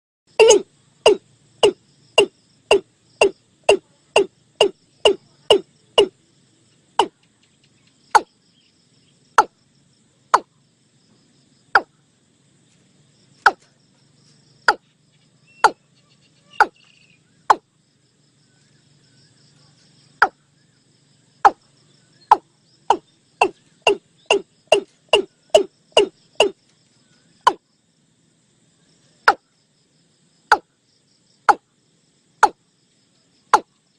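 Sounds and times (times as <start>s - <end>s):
faint insect trilling: 0.3s - 33.9s
bird calling short sharp notes: 0.4s - 6.1s.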